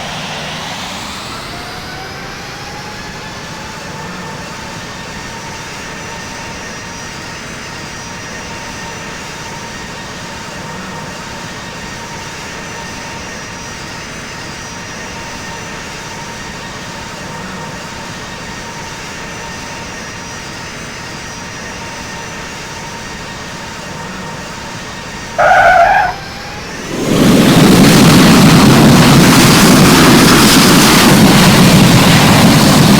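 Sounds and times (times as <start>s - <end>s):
jet airliner noise: 0.0s - 7.1s, 12.8s - 32.9s
faint even whine: 21.9s - 28.2s
loud pitched tone: 25.4s - 27.0s.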